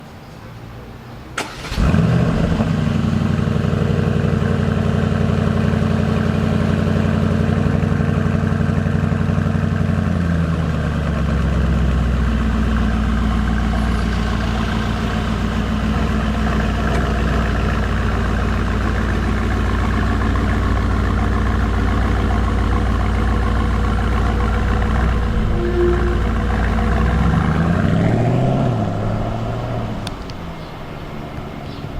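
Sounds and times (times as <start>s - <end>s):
car engine idling: 1.4s - 31.9s.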